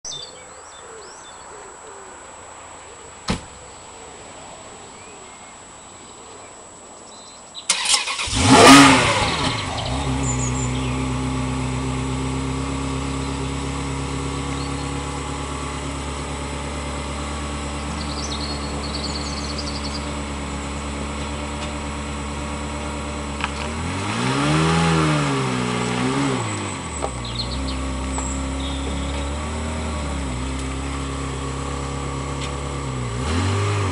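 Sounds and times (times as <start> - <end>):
car engine idling and revving: 7.7 - 33.9.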